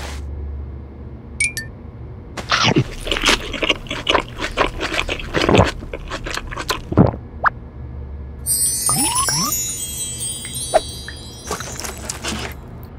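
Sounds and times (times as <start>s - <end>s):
cartoon crunchy munching: 2.4s - 7.3s, 11.4s - 12.6s.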